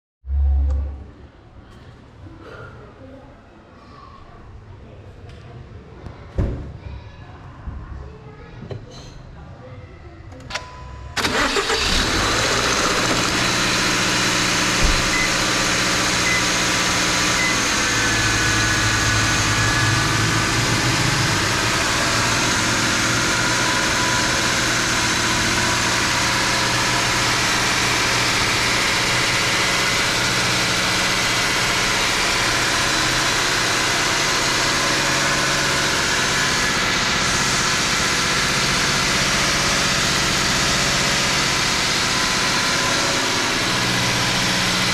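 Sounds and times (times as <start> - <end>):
car engine cranking and idling: 10.5 - 44.9.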